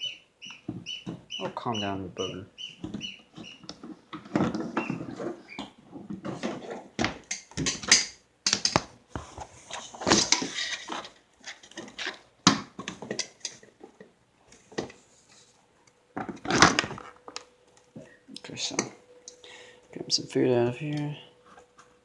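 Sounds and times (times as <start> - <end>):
things being handled: 2.8 - 18.1.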